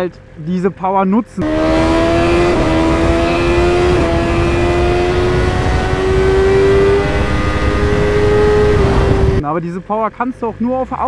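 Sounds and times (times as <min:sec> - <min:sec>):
motorcycle engine accelerating: 0:01.4 - 0:09.4
rush of wind: 0:01.4 - 0:09.4.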